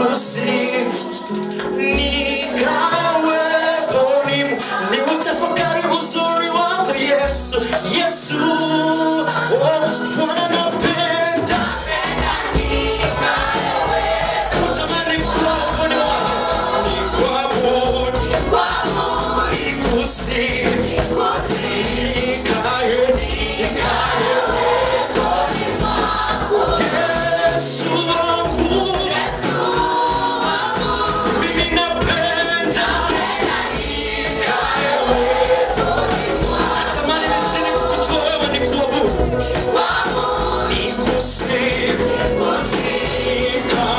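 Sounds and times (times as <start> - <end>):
band backing: 0.0 - 43.9
vocal group singing gospel: 0.0 - 43.9
bass beat: 10.8 - 43.9.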